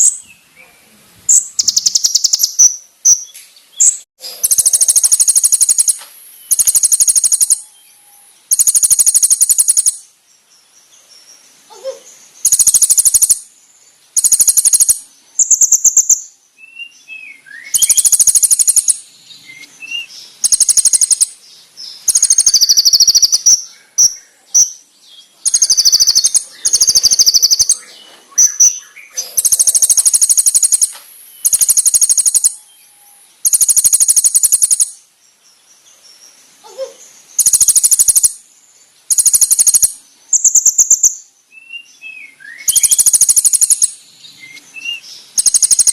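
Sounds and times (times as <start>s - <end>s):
bird chirps and sliding notes: 1.3s - 7.7s, 17.7s - 23.6s, 25.5s - 34.9s, 44.5s - 45.9s
bird singing high rapid trills: 1.3s - 45.9s.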